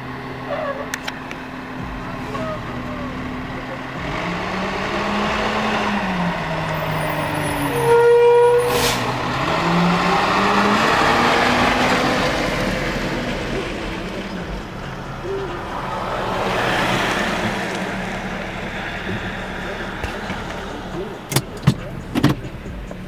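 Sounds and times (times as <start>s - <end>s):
diesel engine revving: 0.0s - 23.0s
sharp hiss: 8.5s - 9.5s.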